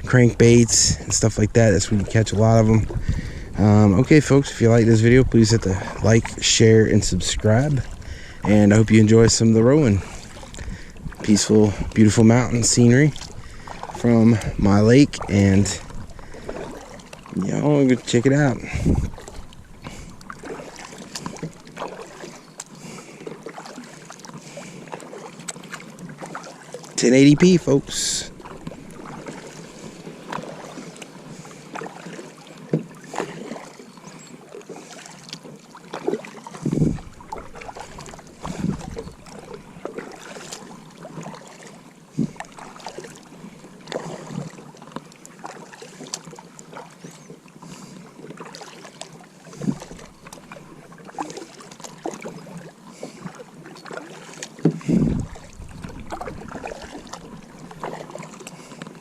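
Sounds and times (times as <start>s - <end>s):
kayak paddle strokes: 0.0s - 59.0s
water splashes: 0.0s - 59.0s
low thumps: 36.6s - 37.6s.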